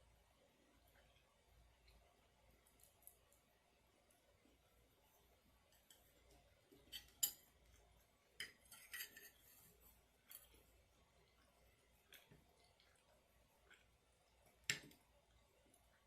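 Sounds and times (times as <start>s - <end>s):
metal spoon clinking on container: 8.4s - 9.4s.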